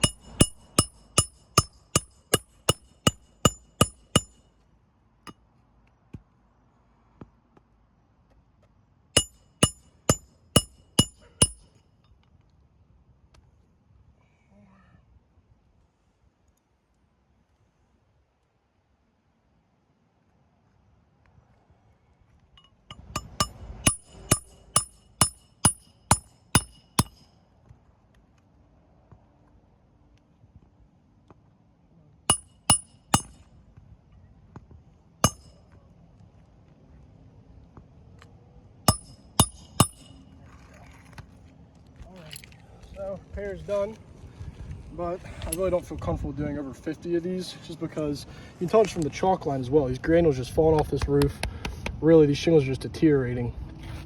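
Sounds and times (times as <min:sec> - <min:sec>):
hammer driving nails: 0:00.0 - 0:04.4, 0:09.2 - 0:11.6, 0:23.0 - 0:27.2, 0:32.3 - 0:33.3, 0:38.9 - 0:40.1.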